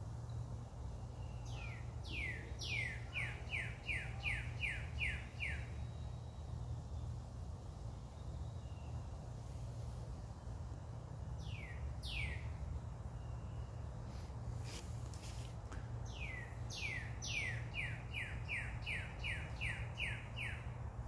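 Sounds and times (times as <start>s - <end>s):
songbird whistling: 11.4s - 12.5s.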